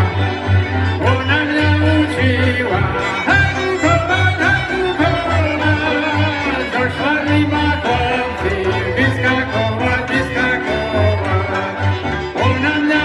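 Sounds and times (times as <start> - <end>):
fiddle melody: 0.0 - 13.0
steady bass: 0.0 - 13.0.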